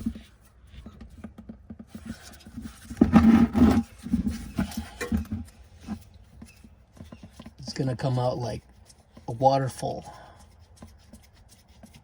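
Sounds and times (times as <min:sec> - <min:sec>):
scraping and knocks: 0:00.0 - 0:07.9.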